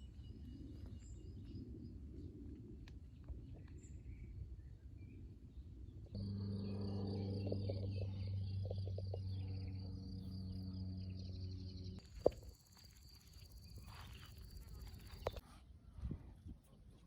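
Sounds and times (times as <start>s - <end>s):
steady low drone: 6.1s - 12.0s
insect trilling: 6.2s - 15.4s.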